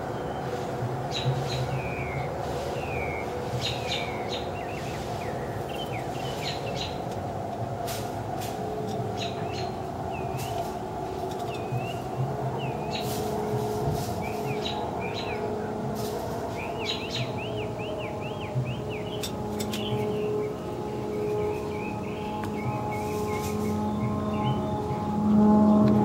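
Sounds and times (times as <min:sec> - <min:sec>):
birds chirping: 0:00.0 - 0:07.4, 0:08.3 - 0:26.0.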